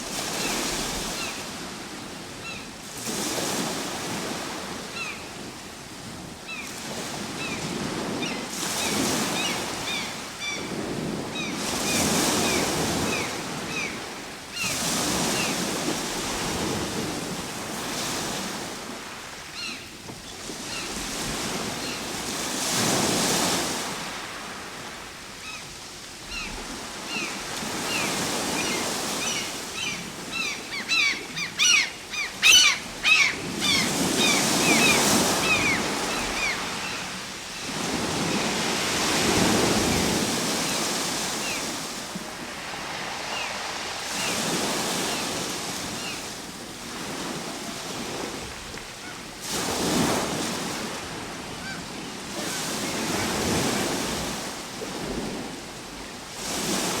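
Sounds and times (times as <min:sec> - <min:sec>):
ocean waves breaking: 0:00.0 - 0:57.0
high bird calls: 0:27.1 - 0:37.1.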